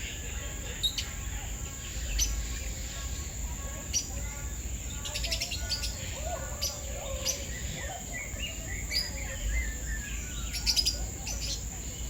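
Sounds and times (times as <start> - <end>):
steady high-pitched hiss: 0.0 - 12.0
birds chirping and whistling: 5.1 - 11.7.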